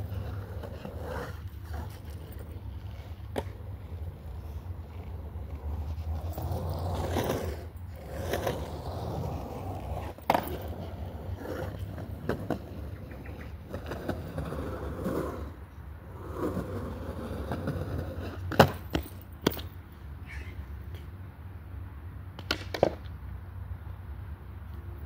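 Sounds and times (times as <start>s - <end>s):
skateboard clacks: 0.0s - 15.5s, 16.2s - 19.8s, 22.3s - 23.2s
skateboard wheels rumbling: 0.0s - 21.7s, 22.4s - 23.1s.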